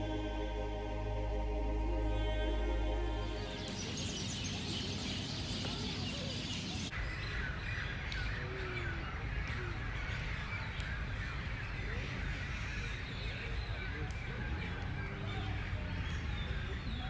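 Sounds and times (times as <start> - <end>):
low background rumble: 0.0 - 6.9
birds chirping and calling: 3.2 - 17.0.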